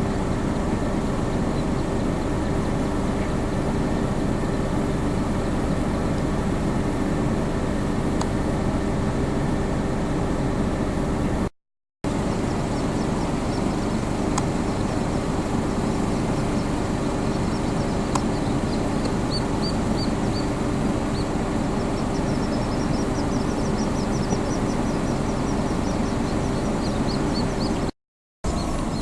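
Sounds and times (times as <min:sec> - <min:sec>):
bird chicks peeping: 0:00.0 - 0:08.0, 0:12.1 - 0:27.9
low hum: 0:00.0 - 0:11.5, 0:12.1 - 0:27.9
rushing background noise: 0:12.1 - 0:27.9.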